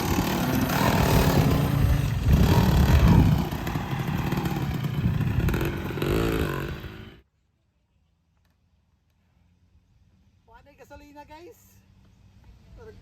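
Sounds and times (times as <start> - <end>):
dirt bike engine revving: 0.0 - 7.2.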